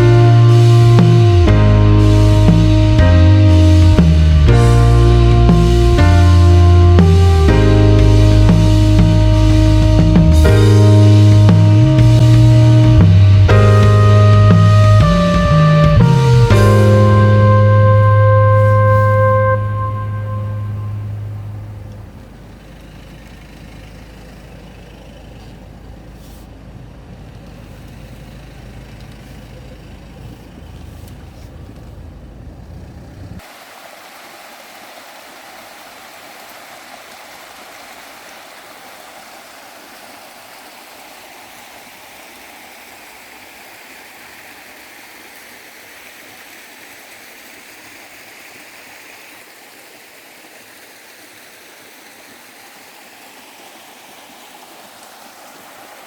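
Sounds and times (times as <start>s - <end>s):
stream rushing over rocks: 0.0s - 32.8s, 33.4s - 56.0s
low steady rumble: 0.0s - 33.4s.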